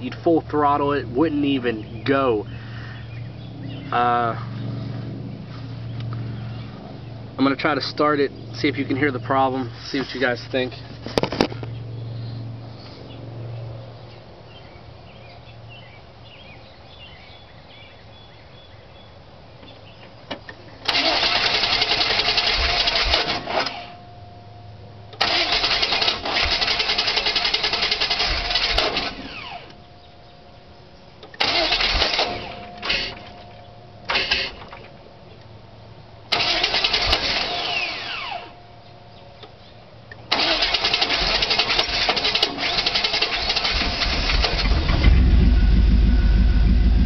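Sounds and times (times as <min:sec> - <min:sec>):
starter motor cranking engine: 0:20.8 - 0:23.9, 0:25.2 - 0:29.8, 0:31.2 - 0:33.3, 0:34.1 - 0:34.9, 0:36.3 - 0:38.5, 0:40.3 - 0:47.0.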